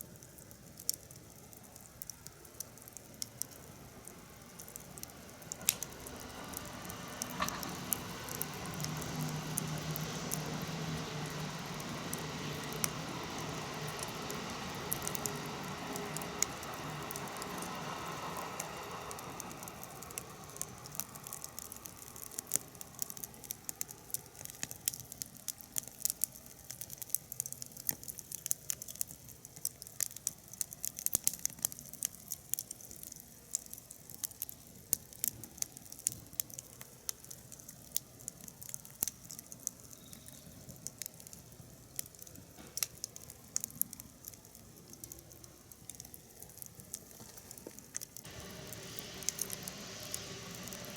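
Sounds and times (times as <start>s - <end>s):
wood fire crackling and popping: 0.0s - 50.9s
rushing noise: 5.1s - 22.3s, 48.3s - 50.9s.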